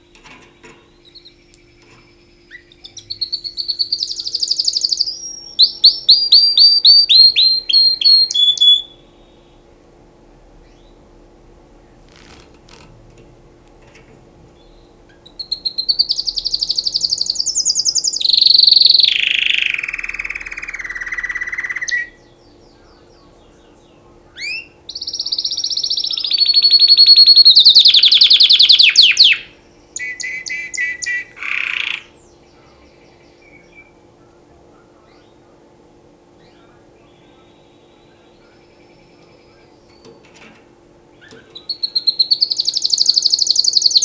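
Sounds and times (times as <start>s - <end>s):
canary singing trills: 0.0s - 9.8s, 14.4s - 35.7s, 36.4s - 44.0s.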